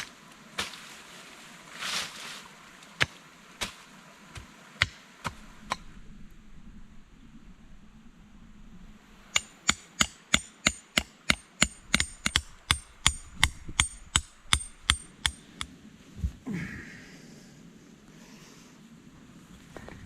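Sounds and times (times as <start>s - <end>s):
hand tool striking wood: 9.3s - 15.7s.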